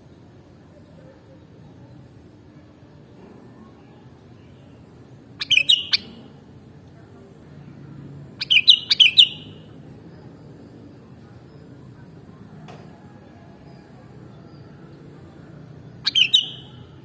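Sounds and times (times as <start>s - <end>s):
bulbul chirping song: 4.4s - 6.4s, 8.4s - 9.8s, 13.7s - 17.0s.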